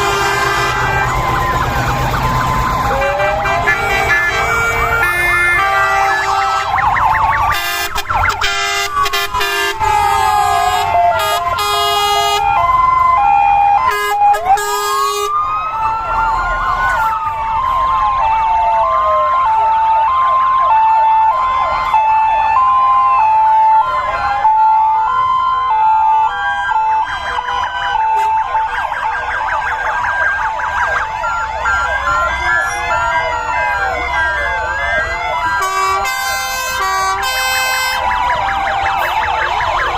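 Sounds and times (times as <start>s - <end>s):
horn blasts: 0.0s - 1.3s, 2.9s - 6.9s, 7.5s - 12.4s, 13.9s - 15.4s, 35.6s - 38.0s
fire engine sirens wailing: 0.0s - 39.9s.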